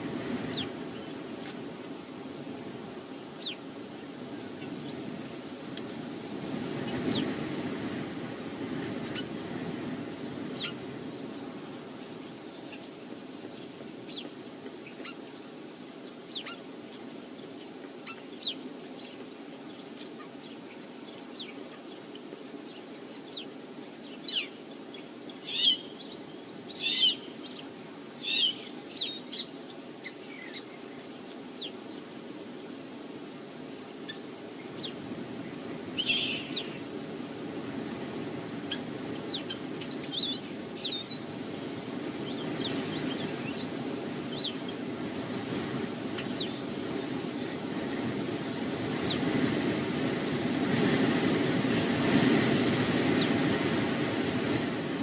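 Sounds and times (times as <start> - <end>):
wind buffeting microphone: 0.0 - 15.1, 34.0 - 55.0
high bird chirps: 16.3 - 16.6, 25.2 - 30.6.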